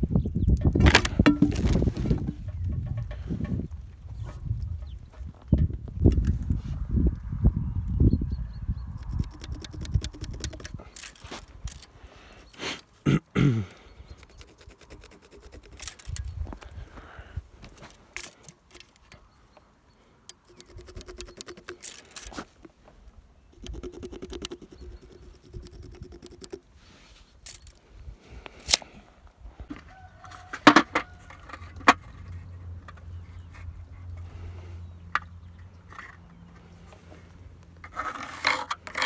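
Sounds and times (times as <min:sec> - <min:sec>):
hand tools scraping wood: 0:00.8 - 0:02.5, 0:14.1 - 0:16.2, 0:20.5 - 0:22.6, 0:30.3 - 0:39.0
scattered clicks: 0:09.0 - 0:11.9, 0:20.3 - 0:22.3, 0:23.5 - 0:26.6.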